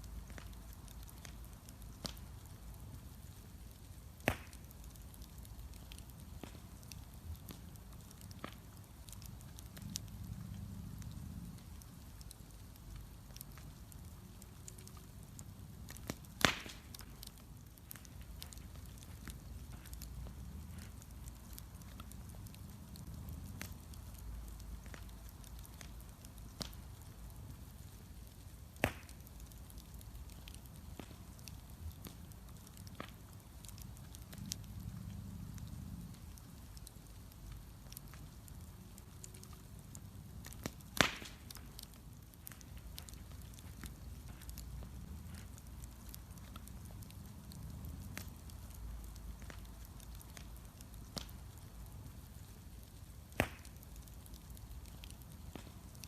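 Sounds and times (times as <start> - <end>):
bonfire crackling: 0.0 - 56.0
low steady rumble: 4.9 - 28.7, 29.5 - 53.2
sharp pops: 16.0 - 18.6, 28.8 - 29.3, 40.5 - 41.7, 53.3 - 53.8.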